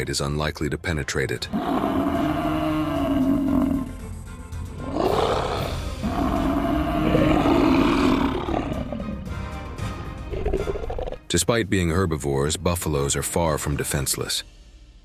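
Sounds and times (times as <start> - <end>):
background music: 0.0 - 15.0
large animal roaring: 1.5 - 4.0, 4.8 - 9.4, 10.3 - 11.2.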